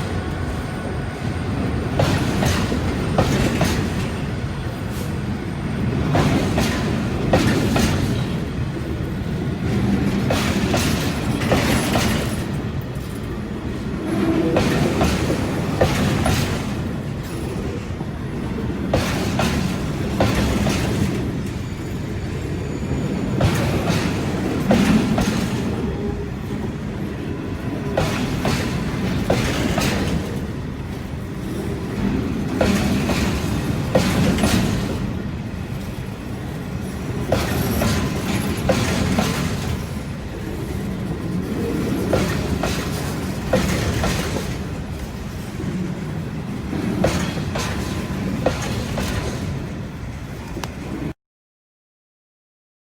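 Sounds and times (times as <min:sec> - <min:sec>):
wheels clacking over rail joints: 0:06.0 - 0:13.3, 0:14.1 - 0:17.8, 0:23.0 - 0:26.6, 0:27.6 - 0:49.6.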